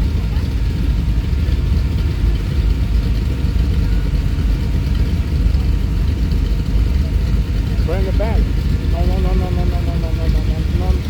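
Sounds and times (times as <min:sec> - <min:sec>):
car engines idling: 0:00.0 - 0:11.0.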